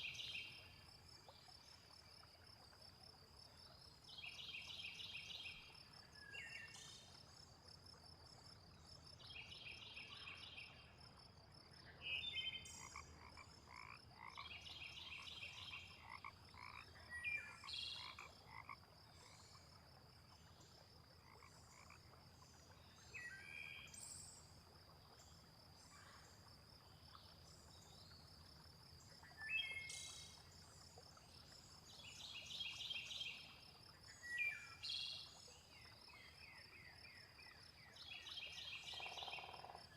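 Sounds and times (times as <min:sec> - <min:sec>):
frogs croaking: 0:11.0 - 0:39.9
insect trill: 0:38.8 - 0:39.9.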